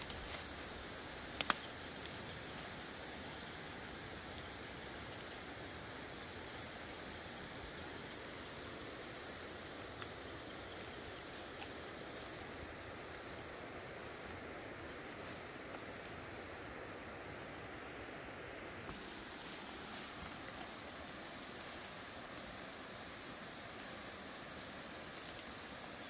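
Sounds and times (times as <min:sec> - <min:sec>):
steady hiss: 0:00.0 - 0:26.0
faint ticks: 0:01.3 - 0:04.5, 0:09.3 - 0:13.6, 0:18.8 - 0:26.0.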